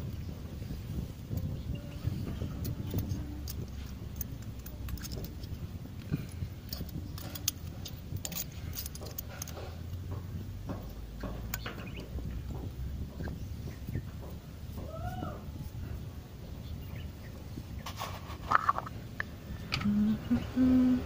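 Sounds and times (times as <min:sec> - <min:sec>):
steady low hum: 0:00.0 - 0:21.0
metal tools clinking: 0:02.3 - 0:10.0.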